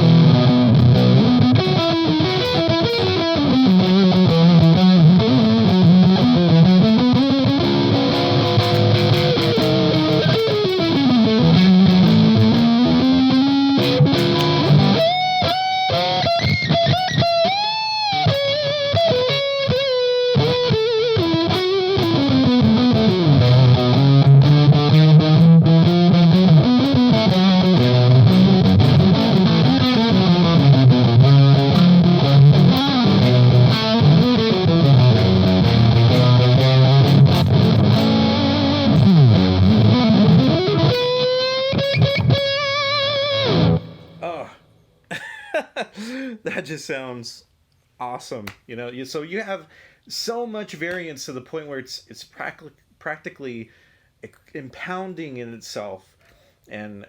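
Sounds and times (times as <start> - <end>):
distorted electric guitar blues shuffle: 0.0 - 44.8.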